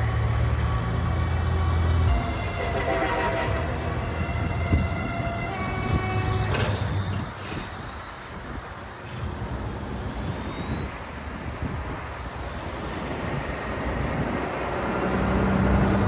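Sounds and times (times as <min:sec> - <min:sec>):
heavy trucks driving past: 0:00.0 - 0:16.0
steady horn-like tones: 0:01.9 - 0:06.6.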